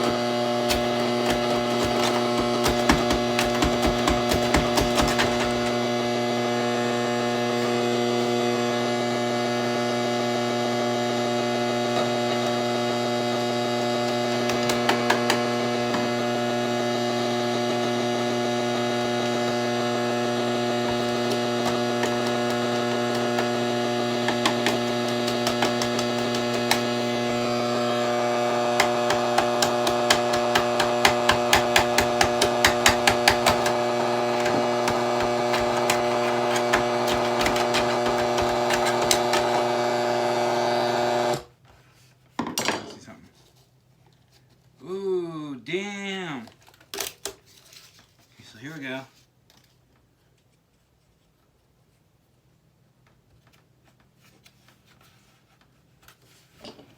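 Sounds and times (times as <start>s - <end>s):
electrical mains hum: 0.0s - 42.1s.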